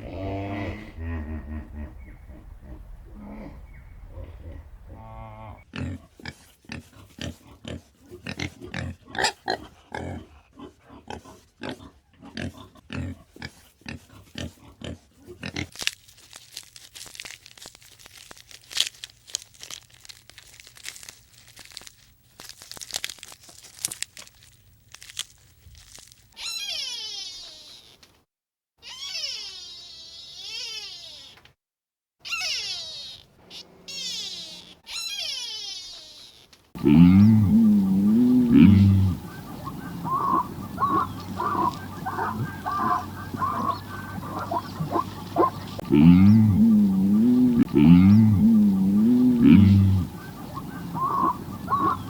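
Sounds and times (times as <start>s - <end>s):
farm animals grunting: 0.0s - 15.7s, 32.3s - 35.6s, 36.8s - 52.0s
crunching and rustling: 15.4s - 26.5s, 36.8s - 52.0s.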